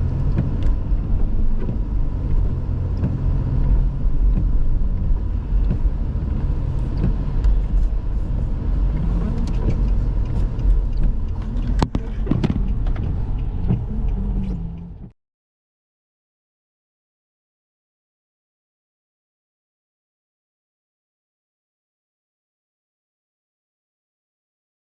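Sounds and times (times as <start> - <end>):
car engine and tyres rumbling: 0.0 - 15.2.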